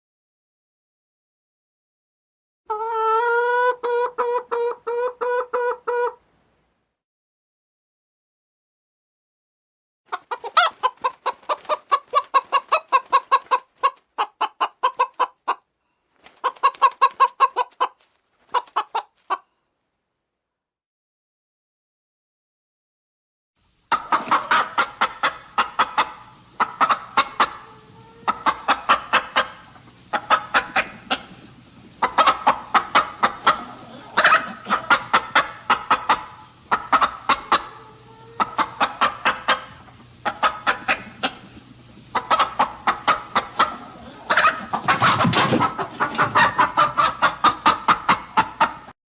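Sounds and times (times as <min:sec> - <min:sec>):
chickens clucking: 0:02.7 - 0:06.2, 0:10.1 - 0:19.5, 0:23.9 - 0:49.0.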